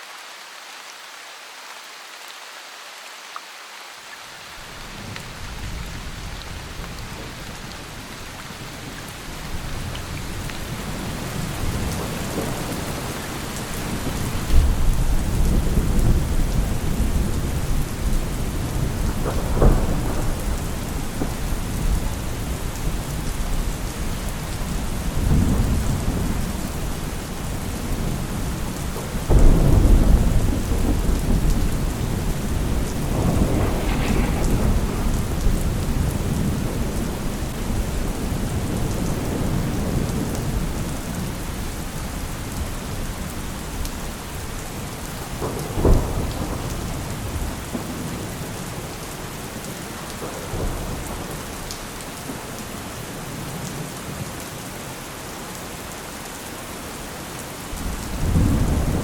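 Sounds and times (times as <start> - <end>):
heavy rain: 0.0 - 59.0
rolling thunder: 9.6 - 26.9, 29.2 - 41.0, 45.2 - 48.6, 57.8 - 59.0
sharp thunder crack: 29.3 - 37.8.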